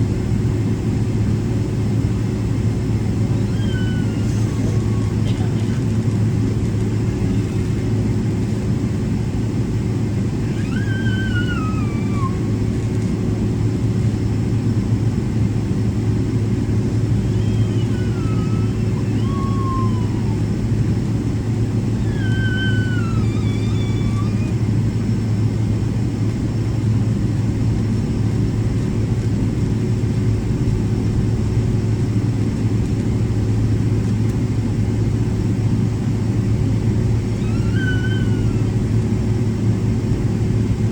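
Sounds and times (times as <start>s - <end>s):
airplane cabin rumble and hum: 0.0s - 40.9s
squealing tones sliding downward: 3.3s - 5.3s, 10.4s - 12.7s, 17.1s - 20.6s, 22.0s - 24.7s, 37.3s - 38.8s.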